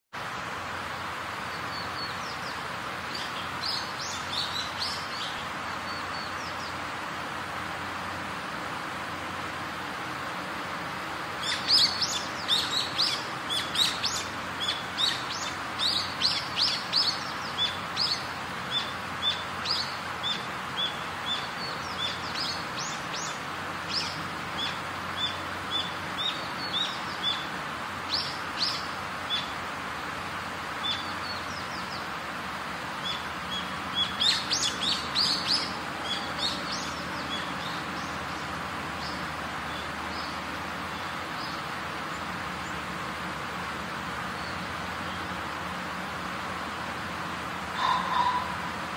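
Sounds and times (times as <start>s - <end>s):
steady background hiss: 0.2s - 48.9s
small birds chirping: 1.4s - 7.1s, 11.2s - 43.0s, 43.9s - 45.8s, 47.7s - 48.9s.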